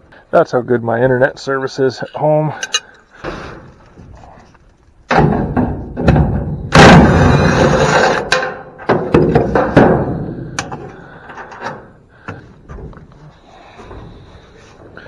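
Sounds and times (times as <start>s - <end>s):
heavy metal parts clanking: 2.0s - 3.4s, 5.1s - 14.5s
loud scraping clatter: 6.7s - 10.1s.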